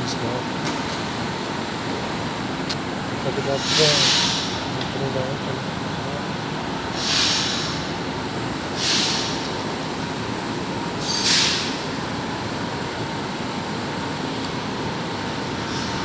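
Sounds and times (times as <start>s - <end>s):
metro train rumble: 0.0s - 16.0s
air hiss bursts: 3.6s - 4.7s, 7.0s - 8.0s, 8.8s - 9.5s, 11.0s - 11.8s, 15.6s - 16.0s.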